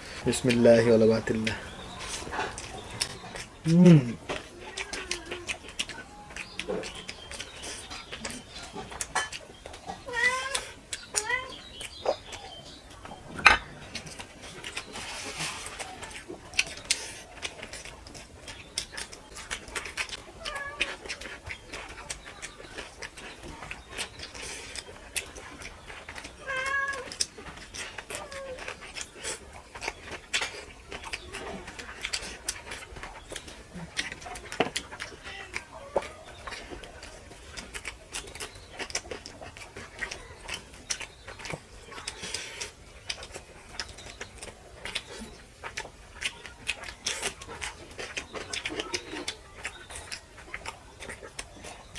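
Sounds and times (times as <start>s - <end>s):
lip smacks: 0.0s - 9.4s
chewing: 0.0s - 51.9s
wet mouth clicks: 0.2s - 7.6s
eating clicks and smacks: 0.2s - 15.0s, 15.7s - 51.9s.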